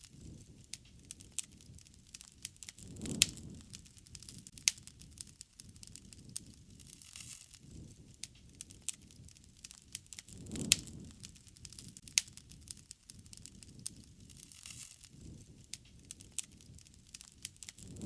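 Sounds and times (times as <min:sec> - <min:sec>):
campfire crackling and popping: 0:00.0 - 0:18.0
rumble of flame: 0:00.0 - 0:18.0.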